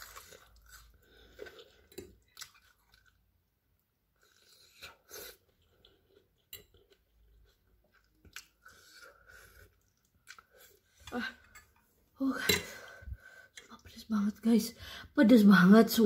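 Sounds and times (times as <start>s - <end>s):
wet chewing of noodles: 0.0s - 11.1s.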